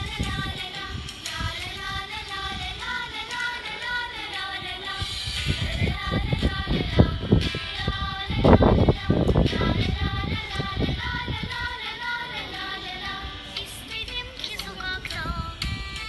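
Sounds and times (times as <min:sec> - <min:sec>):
child singing: 0:00.0 - 0:15.7.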